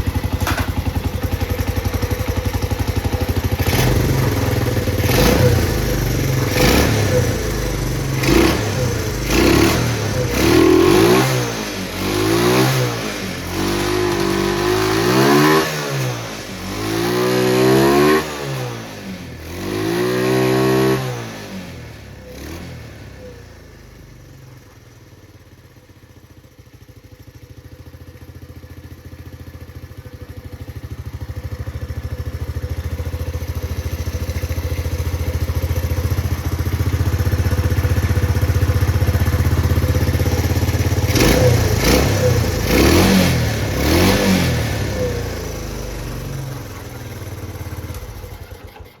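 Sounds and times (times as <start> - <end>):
motorcycle engine idling: 0.0 - 15.1, 23.0 - 49.0
engine revving: 3.2 - 23.3, 33.6 - 49.0.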